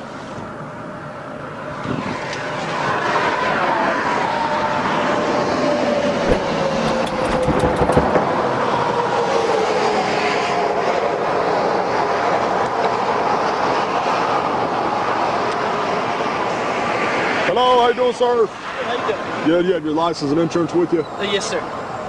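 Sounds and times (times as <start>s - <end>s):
highway traffic rushing past: 1.3s - 22.0s
quick clicks and knocks: 6.2s - 8.3s.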